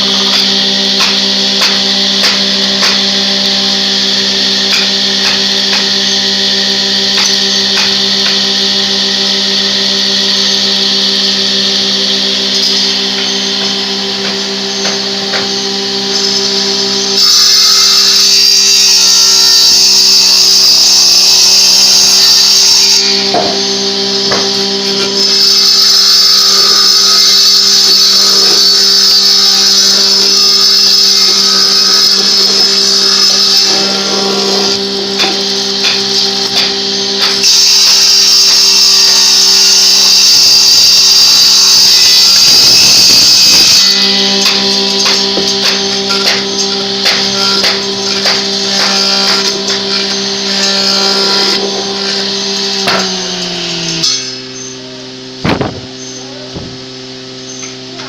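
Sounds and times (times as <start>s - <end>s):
power tool on wood: 0.0s - 58.0s
steady hum: 25.8s - 58.0s.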